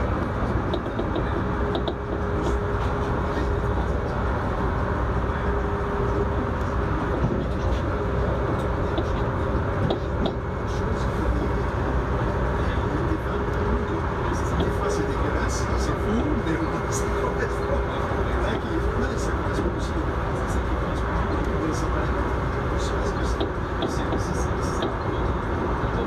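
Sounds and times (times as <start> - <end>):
mid-pitched hum: 0.0 - 26.0
train deep rumble: 0.0 - 26.0.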